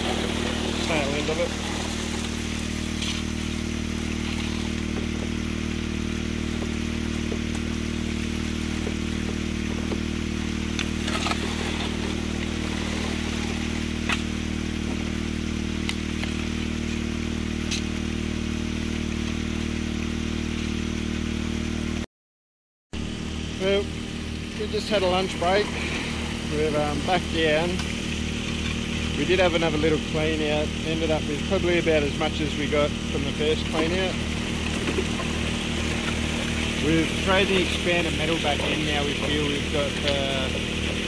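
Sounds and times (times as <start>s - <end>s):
gravel clicks: 0.0s - 5.5s
water rushing through sluice: 0.0s - 19.9s, 23.0s - 41.0s
water pump engine running: 0.0s - 22.0s, 23.0s - 41.0s.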